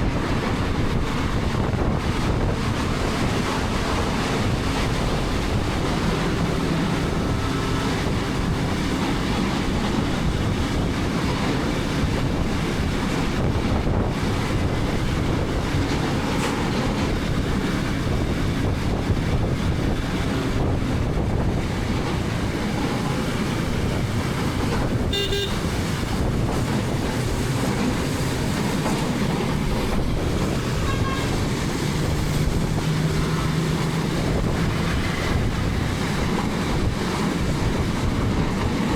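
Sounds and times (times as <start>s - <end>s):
road traffic: 0.0s - 38.9s
wind rushing: 0.0s - 38.9s
vehicle horn toot: 25.1s - 25.8s, 30.8s - 31.4s.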